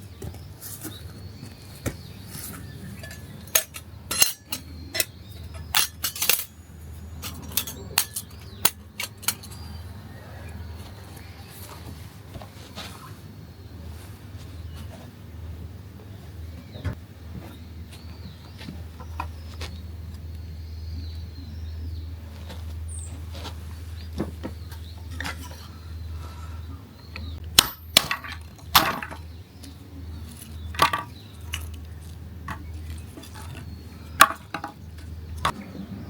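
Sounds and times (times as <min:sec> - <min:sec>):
sharp cracks and clinks: 0:03.0 - 0:06.6, 0:07.2 - 0:09.7, 0:27.4 - 0:29.3.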